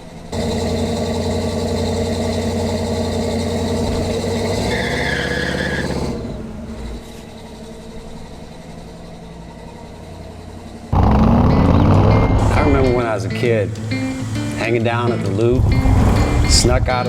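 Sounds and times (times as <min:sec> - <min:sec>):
car engine idling: 0:00.0 - 0:17.0
loud music: 0:11.0 - 0:17.0.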